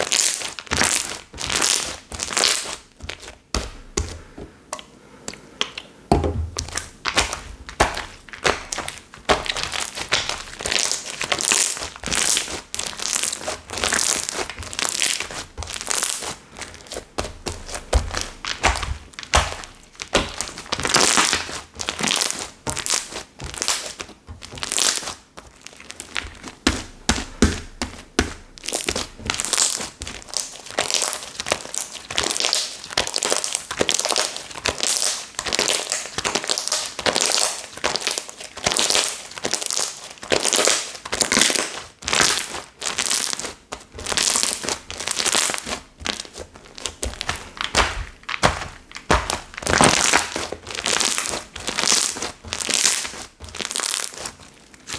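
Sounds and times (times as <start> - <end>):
soft thuds: 6.1 - 6.8
slime squeezed by hand: 28.6 - 54.9.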